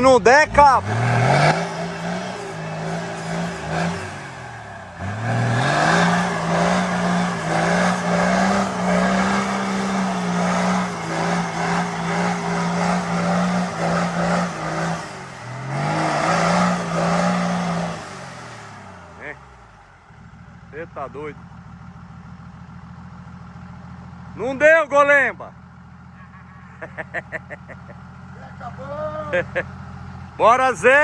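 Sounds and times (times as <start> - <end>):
off-road engine revving: 0.0 - 31.0.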